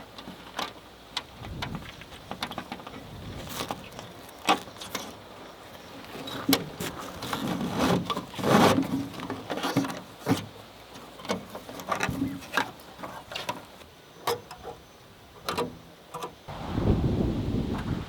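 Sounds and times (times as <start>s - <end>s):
rubbing and rustling: 1.4s - 13.9s.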